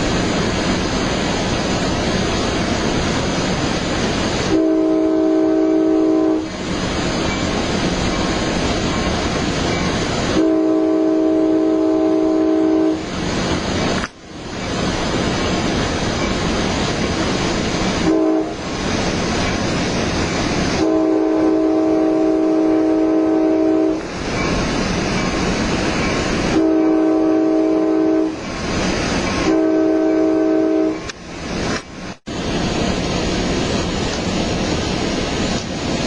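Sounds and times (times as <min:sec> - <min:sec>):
train rumbling on rails: 0:00.0 - 0:36.0
train air horn: 0:04.4 - 0:06.5, 0:10.3 - 0:13.1, 0:18.0 - 0:18.6, 0:20.7 - 0:24.1, 0:26.5 - 0:28.4, 0:29.4 - 0:31.1.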